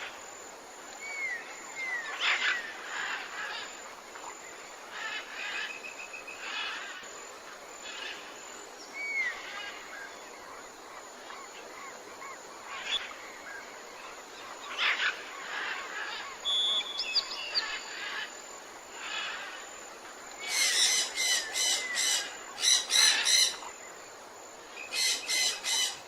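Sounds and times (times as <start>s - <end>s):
faint steady hiss: 0.0s - 26.0s
birds calling and chirping: 11.2s - 18.4s, 20.3s - 24.0s, 24.8s - 26.0s.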